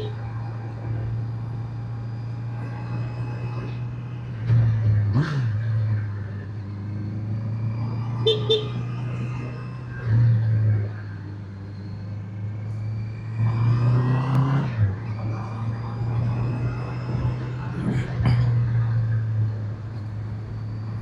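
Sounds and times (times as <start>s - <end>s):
double horn toot: 8.2s - 8.9s.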